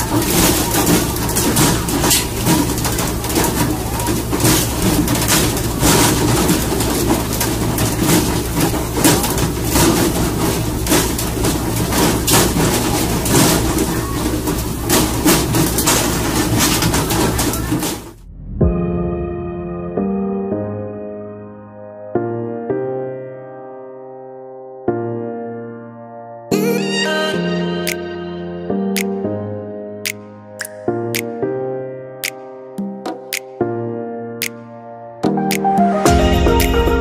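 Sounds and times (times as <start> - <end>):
fish thudding and flapping on deck: 0.0 - 18.2.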